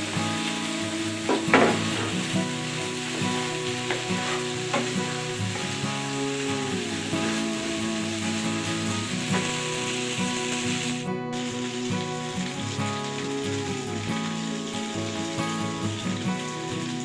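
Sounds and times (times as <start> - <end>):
food sizzling in a frying pan: 0.0 - 17.0
utensil knock: 1.3 - 2.2, 3.8 - 5.7.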